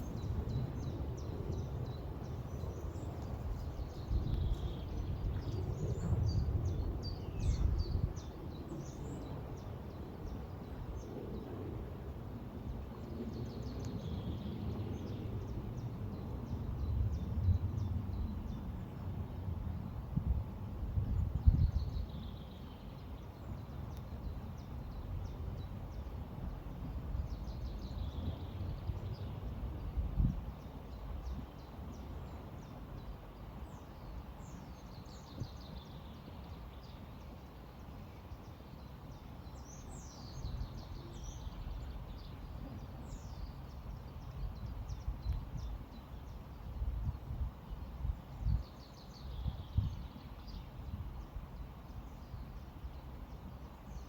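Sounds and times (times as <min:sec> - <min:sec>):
birds chirping: 0:00.0 - 0:11.3.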